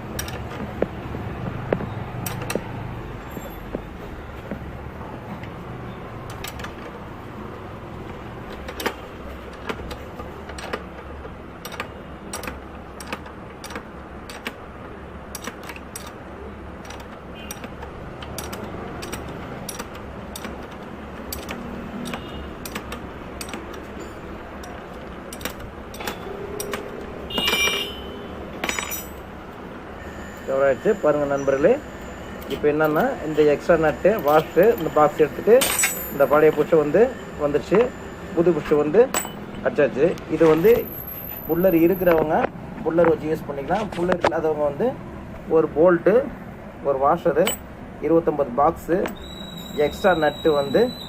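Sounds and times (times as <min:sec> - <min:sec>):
spanner and socket clicking: 0:00.2 - 0:00.5, 0:09.6 - 0:14.6, 0:15.3 - 0:16.2, 0:16.8 - 0:23.9, 0:24.6 - 0:27.9, 0:47.4 - 0:47.7
squeaky metallic ringing: 0:23.4 - 0:24.8, 0:25.9 - 0:29.2, 0:30.0 - 0:39.7, 0:48.8 - 0:51.0.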